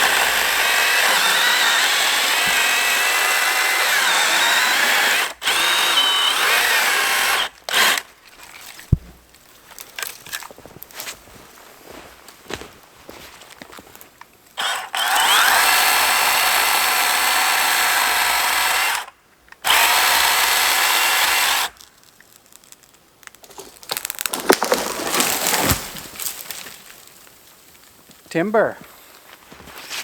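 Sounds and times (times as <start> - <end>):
battery saw motor running: 0.0 - 8.0, 14.6 - 19.1, 19.7 - 21.7
wood crackling and snapping: 0.0 - 11.6, 18.2 - 28.3.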